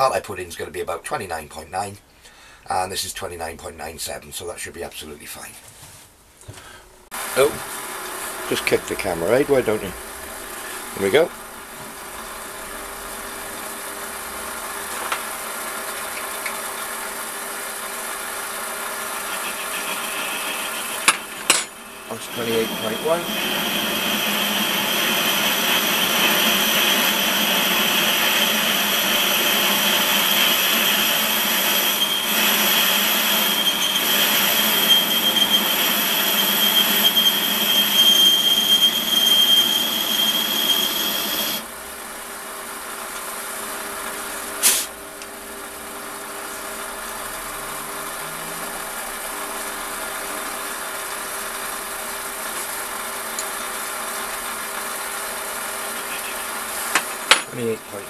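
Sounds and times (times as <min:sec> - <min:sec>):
metal lathe running: 0:17.8 - 0:41.7
lathe tool squealing on metal: 0:19.0 - 0:41.7.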